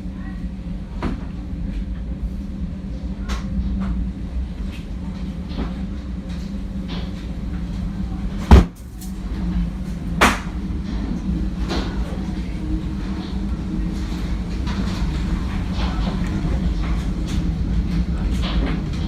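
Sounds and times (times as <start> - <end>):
tornado winds rumbling: 1.5 - 19.0
debris knocking: 8.5 - 8.8
loud bang: 8.5 - 8.8.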